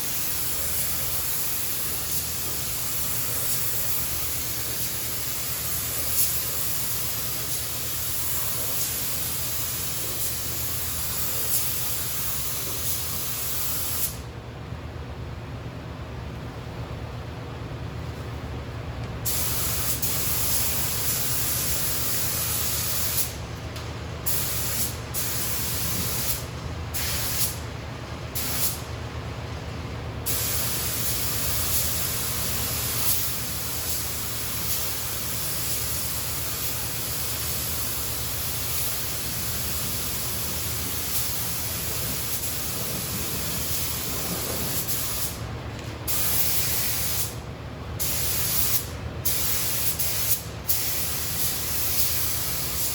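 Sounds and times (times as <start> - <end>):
paint spray gun hissing: 0.0 - 14.2, 19.3 - 23.4, 27.0 - 27.6, 30.3 - 45.4, 46.1 - 47.4, 48.0 - 52.9
steady low hum: 0.0 - 52.9.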